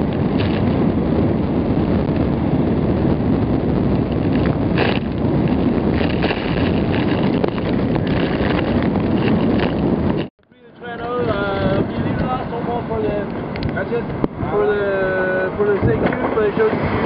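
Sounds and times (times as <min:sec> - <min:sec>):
wind buffeting microphone: 0:00.0 - 0:17.0
water rushing past boat: 0:11.4 - 0:17.0.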